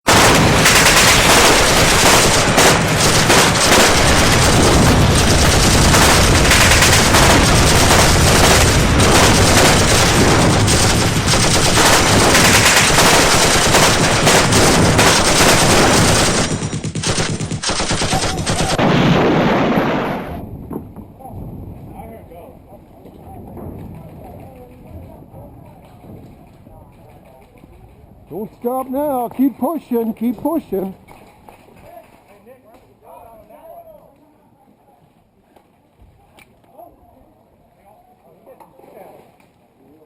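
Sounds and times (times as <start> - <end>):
rapid automatic gunfire: 0.1 - 20.5.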